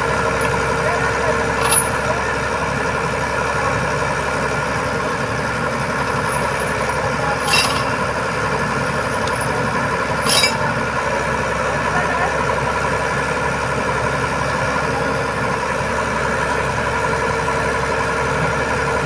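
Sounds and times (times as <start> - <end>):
truck engine idling: 0.0 - 19.0
short sharp clinks: 1.6 - 2.1, 6.2 - 8.1, 9.0 - 10.7.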